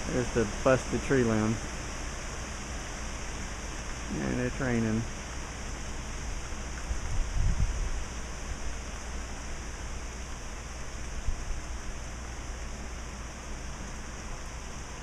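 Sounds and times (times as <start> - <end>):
steady rain falling: 0.0 - 15.0
wind in trees: 0.0 - 15.0
wind rumbling on microphone: 6.1 - 15.0.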